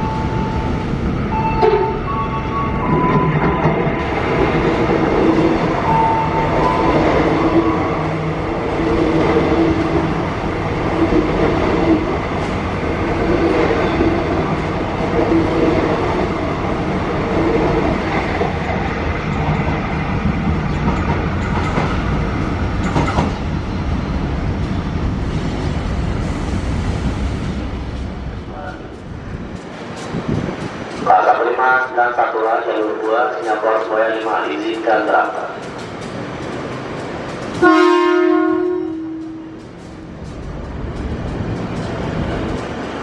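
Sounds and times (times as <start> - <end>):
train wheels rumbling: 0.0 - 43.0
wheels clacking over rails: 8.5 - 23.6, 38.4 - 43.0.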